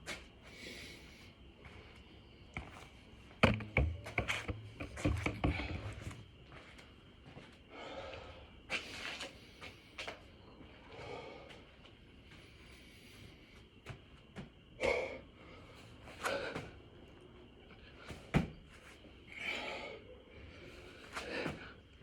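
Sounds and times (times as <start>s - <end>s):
heavy breathing: 7.7s - 8.6s, 10.7s - 13.6s, 14.8s - 16.8s, 19.3s - 21.9s.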